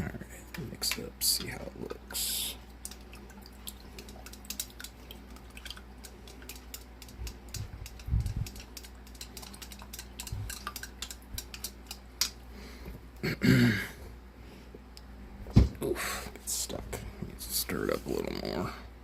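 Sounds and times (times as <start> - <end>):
stirrer tapping glass: 6.0 - 12.0.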